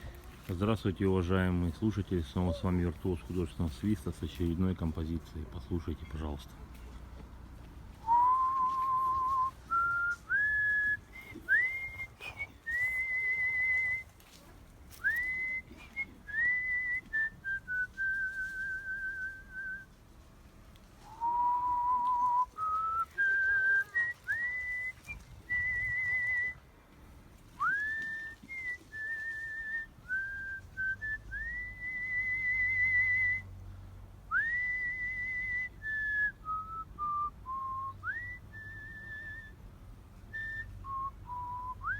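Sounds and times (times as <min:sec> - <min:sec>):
man whistling a melody: 0:08.0 - 0:14.1, 0:15.0 - 0:19.9, 0:21.1 - 0:26.6, 0:27.6 - 0:33.5, 0:34.3 - 0:39.6, 0:40.3 - 0:41.9.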